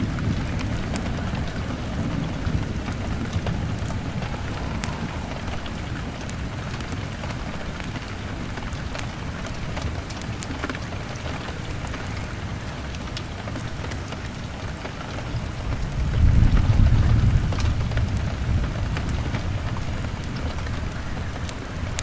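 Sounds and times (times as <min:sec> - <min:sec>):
low rumble: 0:00.0 - 0:08.5
log fire crackling: 0:00.0 - 0:22.0
rain on a window pane: 0:00.0 - 0:22.0.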